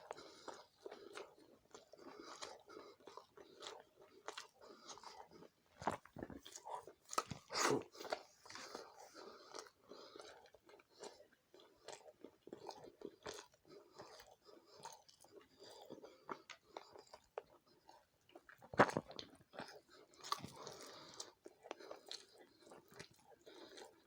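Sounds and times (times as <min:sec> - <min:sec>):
wet chewing mouth clicks: 0:09.5 - 0:24.0.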